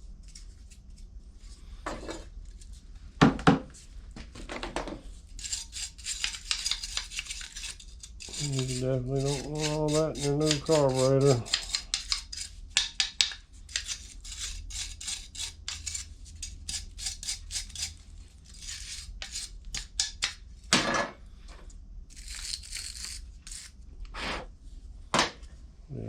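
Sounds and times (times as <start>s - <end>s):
steady low hum: 5.0s - 12.8s, 13.4s - 26.0s
scraping and rubbing strokes: 5.1s - 12.6s, 22.1s - 24.5s.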